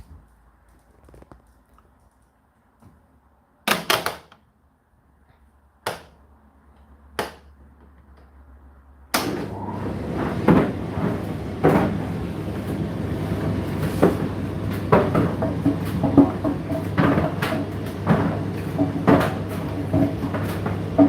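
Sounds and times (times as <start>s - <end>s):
tumble dryer motor hum: 9.2s - 21.0s.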